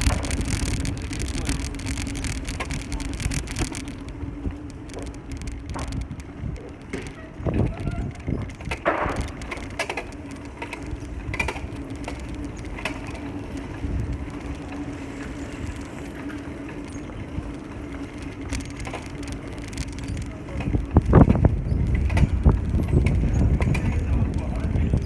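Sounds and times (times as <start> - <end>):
steady hum: 0.0 - 6.6
bicycle tyres and wind rumble: 0.0 - 25.0
light clicks and rattles: 0.0 - 25.0.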